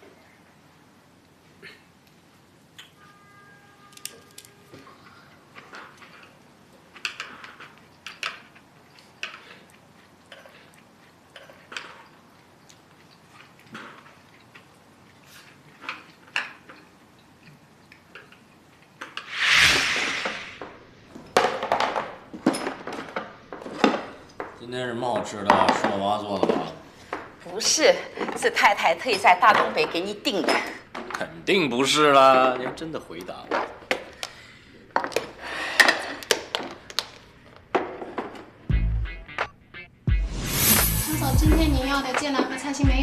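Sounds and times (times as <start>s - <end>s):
rush of noise: 19.3s - 20.6s.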